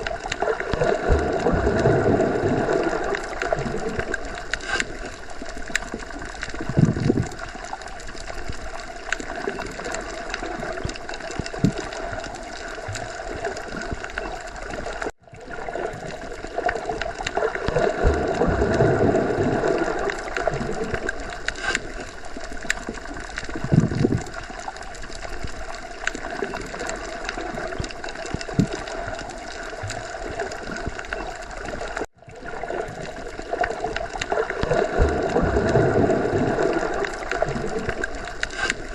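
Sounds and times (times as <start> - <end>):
underwater water noise: 0.0 - 38.9.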